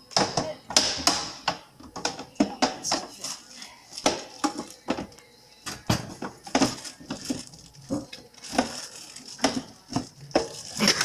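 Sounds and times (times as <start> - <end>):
food containers knocking on shelves: 0.1 - 3.1, 4.0 - 5.1, 5.7 - 8.8, 9.4 - 11.0
rustling packages: 6.1 - 11.0.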